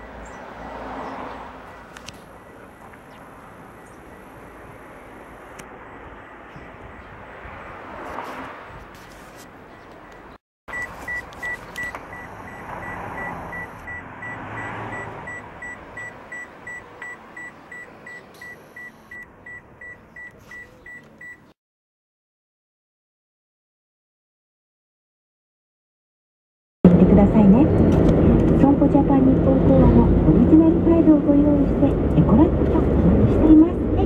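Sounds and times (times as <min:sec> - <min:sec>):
electronic beeper beeping: 0:10.7 - 0:20.0.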